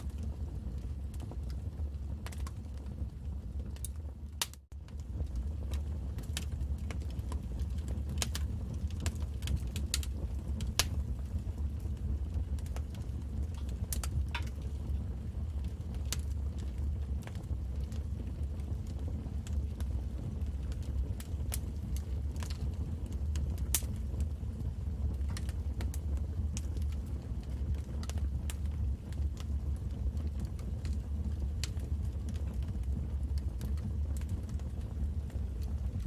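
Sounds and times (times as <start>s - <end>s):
steady low rumble: 0.0s - 36.0s
wood fire crackling and popping: 0.0s - 36.0s.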